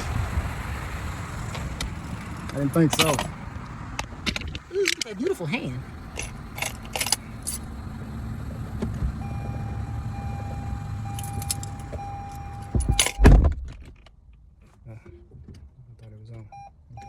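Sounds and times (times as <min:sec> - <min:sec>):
steady low rumble: 0:00.0 - 0:13.5.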